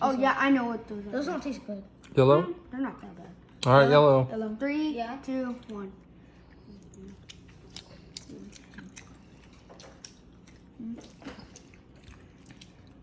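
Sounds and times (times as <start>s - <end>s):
people chewing gummy candy: 5.3s - 13.0s.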